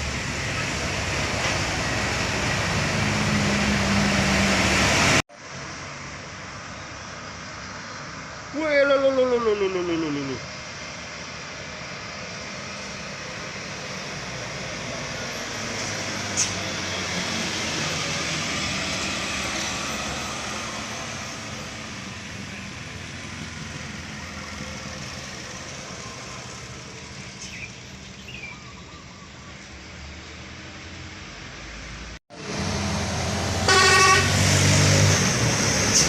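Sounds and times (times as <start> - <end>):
diesel truck engine labouring: 30.5 - 36.0.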